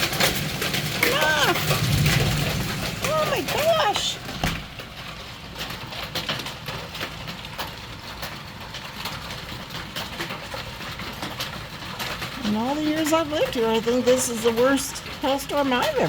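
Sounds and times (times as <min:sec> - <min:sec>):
hail and rain pelting down: 0:00.0 - 0:16.0
hailstones clicking and knocking: 0:00.0 - 0:16.0.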